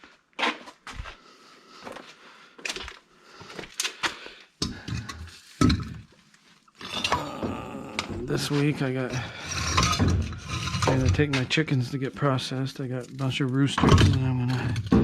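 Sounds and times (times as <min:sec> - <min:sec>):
hard objects knocking and clattering: 0:04.6 - 0:06.1, 0:06.8 - 0:11.6, 0:13.6 - 0:15.0.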